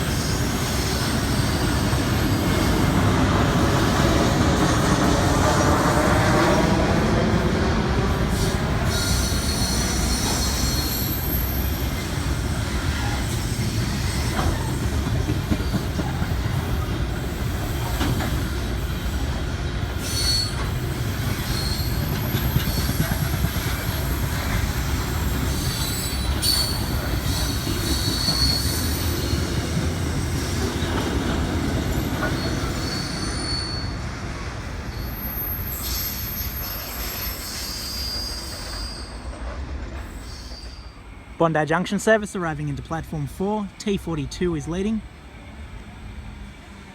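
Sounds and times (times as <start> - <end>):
train wheels rumbling on rails: 0.0 - 46.9
high-pitched wheel squeal: 8.4 - 14.7, 20.0 - 23.2, 25.2 - 29.5, 31.9 - 34.1, 34.9 - 39.4.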